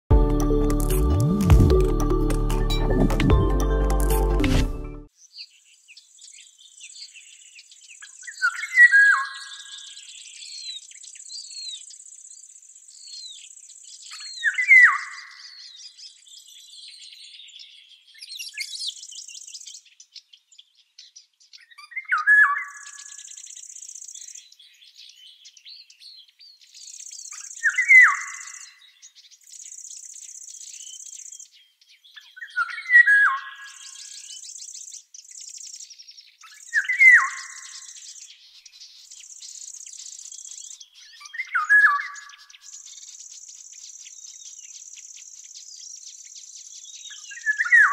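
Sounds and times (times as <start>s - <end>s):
faint bird chirps: 5.2s - 47.9s.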